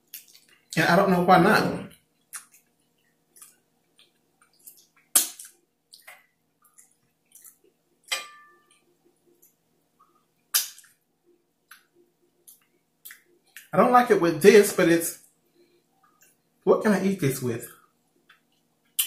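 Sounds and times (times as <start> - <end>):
close chewing with lip smacks: 0.0 - 0.8, 1.9 - 7.8.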